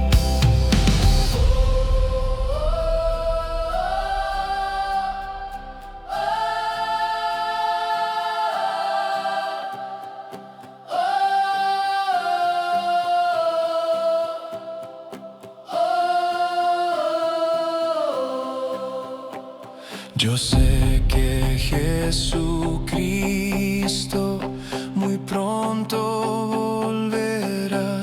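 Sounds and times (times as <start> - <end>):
heavy low backing: 0.0 - 7.1, 20.5 - 24.7
choir singing a hymn: 0.0 - 25.8.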